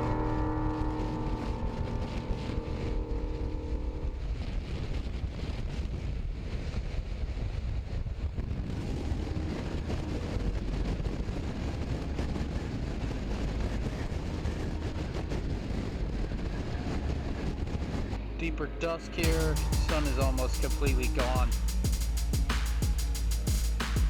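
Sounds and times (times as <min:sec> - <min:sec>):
motorcycle engine and road rumble: 0:00.0 - 0:18.2
wind rushing over microphone: 0:00.0 - 0:18.4.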